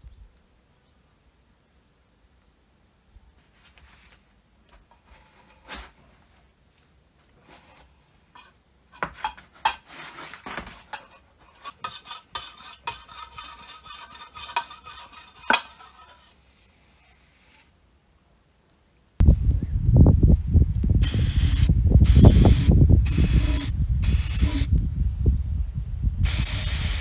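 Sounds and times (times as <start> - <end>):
metal parts clinking and scraping: 8.4 - 16.4.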